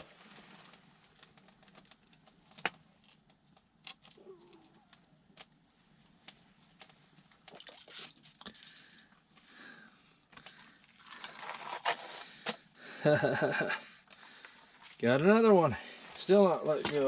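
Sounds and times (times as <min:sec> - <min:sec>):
hands handling fish and line: 0:00.0 - 0:09.5, 0:10.2 - 0:12.8.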